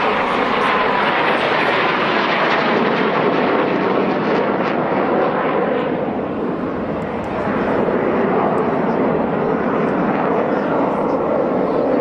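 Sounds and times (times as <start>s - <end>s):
jet aircraft flying past: 0.0s - 12.0s.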